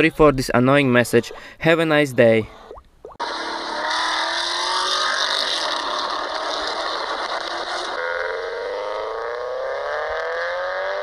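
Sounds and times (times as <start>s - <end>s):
car engine: 3.2s - 11.0s
car engine accelerating: 3.2s - 11.0s.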